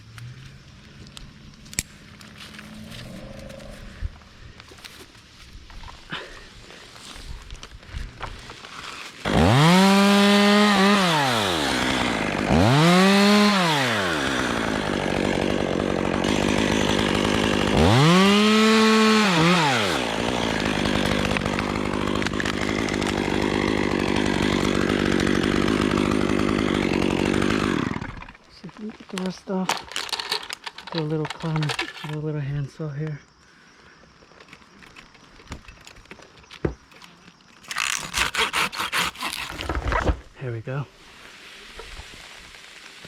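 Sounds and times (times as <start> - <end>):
chainsaw revving: 9.2 - 28.4, 37.7 - 39.7.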